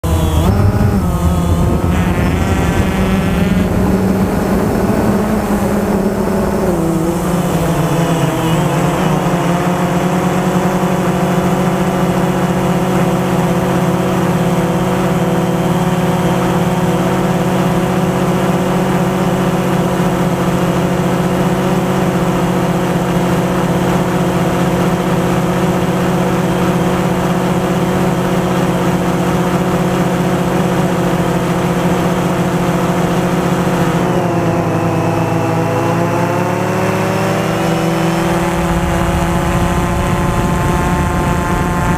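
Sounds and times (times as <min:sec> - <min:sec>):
wind rumble on microphone: 0:00.0 - 0:10.4, 0:37.8 - 0:41.9
drone propellers whining: 0:00.0 - 0:19.8, 0:28.0 - 0:41.9.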